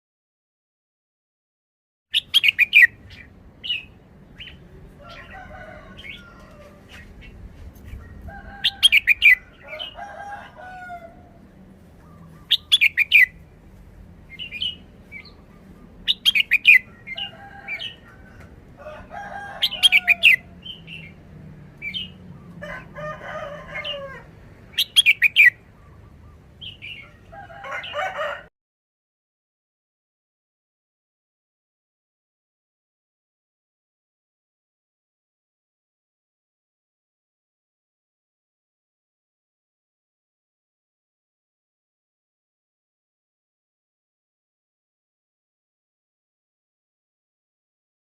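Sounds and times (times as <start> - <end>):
soft bird chattering calls: 2.2 - 5.3, 12.0 - 13.4, 14.3 - 18.0, 24.7 - 27.2
bird singing loud high phrases: 2.2 - 6.2, 12.0 - 13.4, 14.3 - 18.1, 19.6 - 21.2, 24.6 - 28.0.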